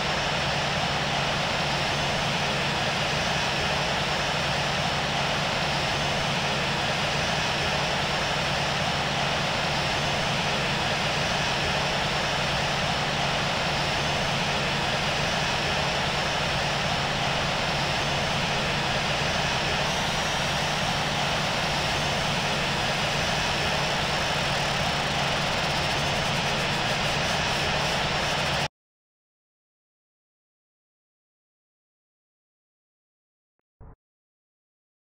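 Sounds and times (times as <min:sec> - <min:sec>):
jet engines running: 0:00.0 - 0:28.7.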